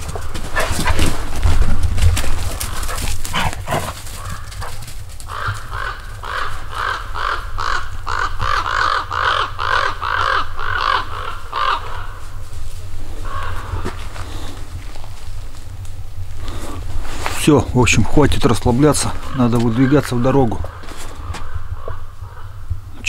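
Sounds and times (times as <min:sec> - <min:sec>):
bird calling harsh notes: 0:05.3 - 0:12.5, 0:13.2 - 0:14.5, 0:18.3 - 0:23.0.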